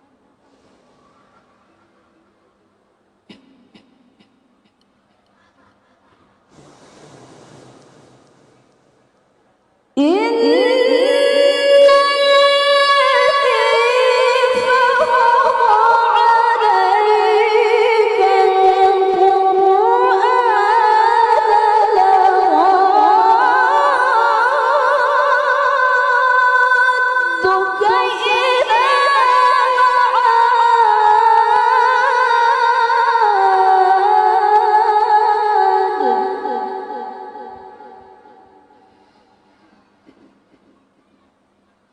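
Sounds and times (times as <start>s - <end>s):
woman reciting melodically: 10.0s - 38.8s.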